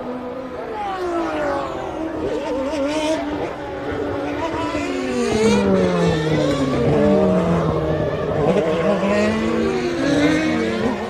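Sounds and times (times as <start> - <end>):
racing cars passing at speed: 0.0 - 11.0.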